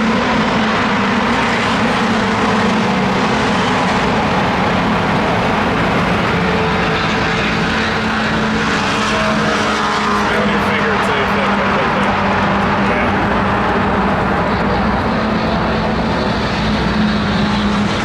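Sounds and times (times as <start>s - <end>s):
engine drone: 0.0s - 18.0s.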